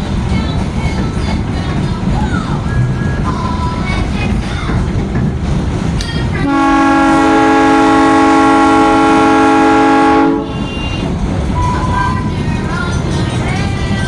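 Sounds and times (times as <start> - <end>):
train horn blowing: 6.4 - 11.2.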